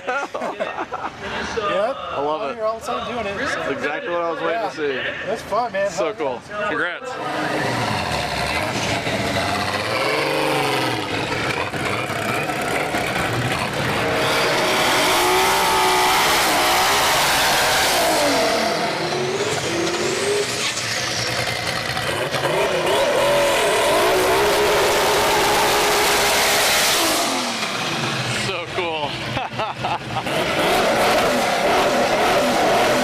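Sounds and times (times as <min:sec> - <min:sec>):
race car engine accelerating: 0:07.2 - 0:29.4, 0:30.0 - 0:33.0
tire noise: 0:07.2 - 0:33.0.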